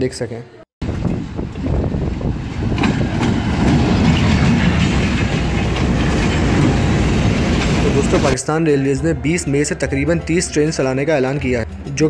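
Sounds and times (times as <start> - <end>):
locomotive engine rumble: 0.8 - 8.4
train wheels clattering on rails: 0.9 - 8.4.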